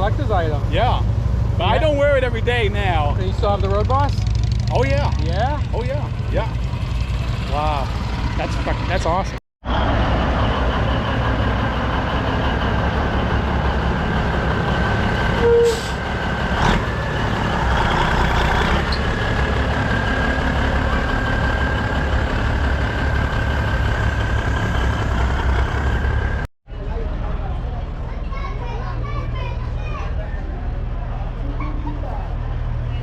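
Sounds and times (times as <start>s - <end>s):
diesel truck engine idling: 6.0s - 31.5s
short beep: 15.4s - 15.9s.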